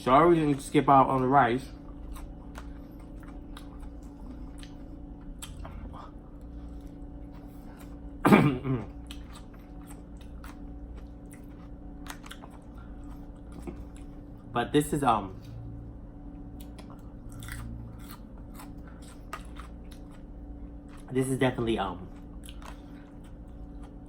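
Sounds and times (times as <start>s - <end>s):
chewing with wet mouth clicks: 1.8s - 8.0s, 8.9s - 14.2s, 16.5s - 21.1s, 22.1s - 24.0s.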